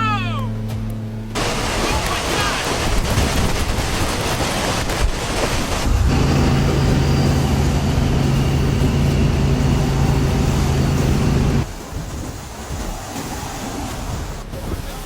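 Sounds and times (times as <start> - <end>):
loud rushing noise: 1.4 - 14.9
low vehicle engine hum: 4.0 - 11.7.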